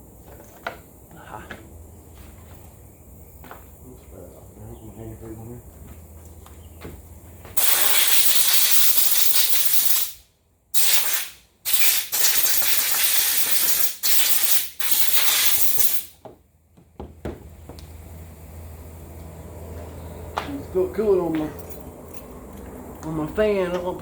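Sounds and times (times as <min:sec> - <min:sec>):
pressurised spray hissing: 0:07.6 - 0:10.2, 0:10.8 - 0:16.1.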